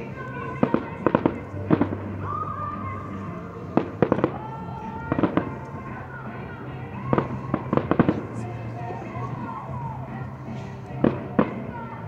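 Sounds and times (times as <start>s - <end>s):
fireworks bangs and crackles: 3.8s - 6.0s, 7.0s - 9.5s, 10.5s - 11.8s.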